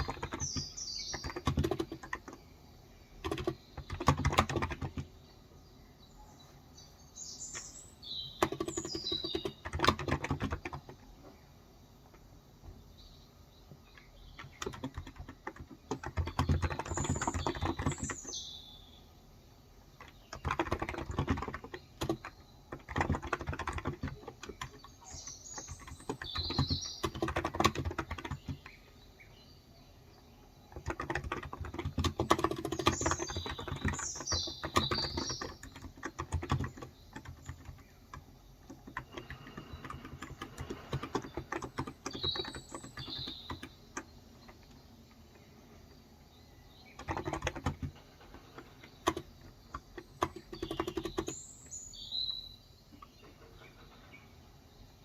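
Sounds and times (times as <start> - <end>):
keyboard key clicks: 0.0 - 2.4, 3.2 - 5.1, 8.4 - 11.1, 14.0 - 18.2, 20.0 - 28.8, 30.7 - 44.8, 46.9 - 51.4
birds chirping: 0.0 - 55.0.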